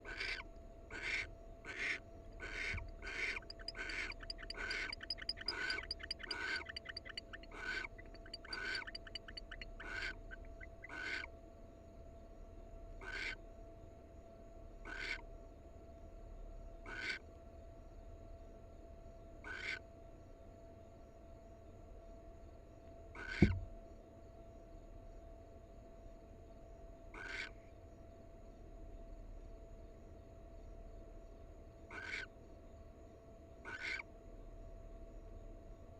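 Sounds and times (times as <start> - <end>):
owls hissing calls: 0.0 - 11.3, 13.0 - 13.4, 14.9 - 15.2, 16.9 - 17.2, 19.5 - 19.8, 27.2 - 27.5, 31.9 - 32.3, 33.7 - 34.0
faint electrical hum: 0.0 - 35.9
rapid chittering: 1.0 - 11.2.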